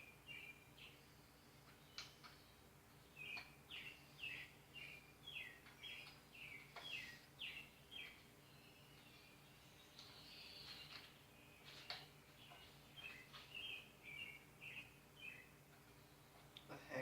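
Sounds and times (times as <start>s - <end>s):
bird chirping: 0.0s - 17.0s
soft clicks: 1.6s - 2.4s.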